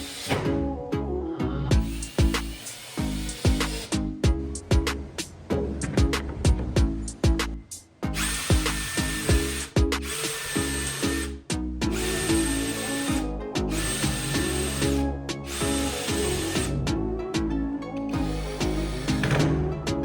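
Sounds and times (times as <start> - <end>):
background music with beat: 0.3 - 20.0
power tool motor whine: 8.2 - 11.3, 11.9 - 16.8, 18.1 - 19.5.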